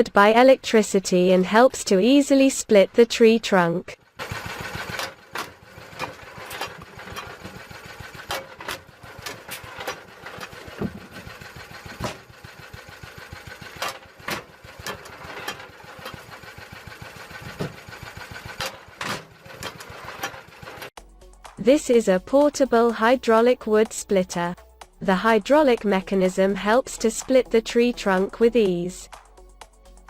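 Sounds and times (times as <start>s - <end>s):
log splitter droning: 4.0s - 21.6s.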